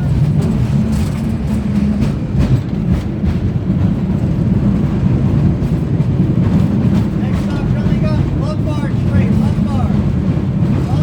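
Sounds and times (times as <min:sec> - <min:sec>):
cable car rumbling on track: 0:00.0 - 0:11.0.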